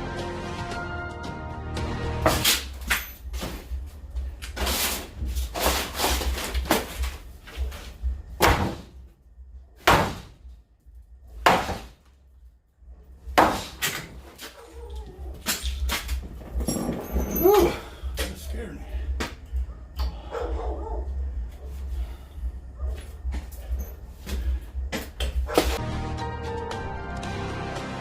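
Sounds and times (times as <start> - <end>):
wooden boards being struck and broken: 8.4 - 9.0, 9.8 - 10.4, 11.4 - 12.0, 13.3 - 14.6.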